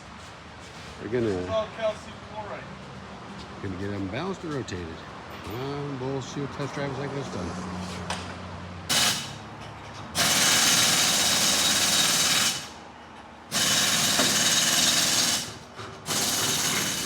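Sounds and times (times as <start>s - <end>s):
pneumatic impact wrench: 8.9s - 9.5s, 10.1s - 12.8s, 13.5s - 17.0s.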